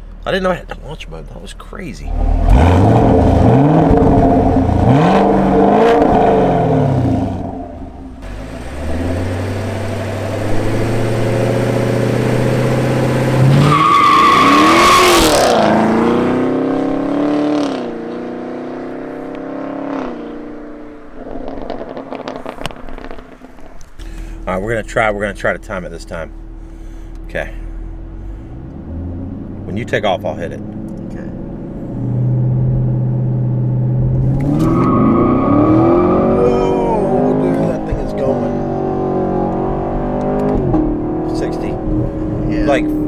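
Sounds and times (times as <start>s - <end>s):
car engine accelerating hard: 2.1s - 23.3s, 27.8s - 43.0s
high tyre squeal: 13.4s - 15.5s, 34.5s - 37.1s.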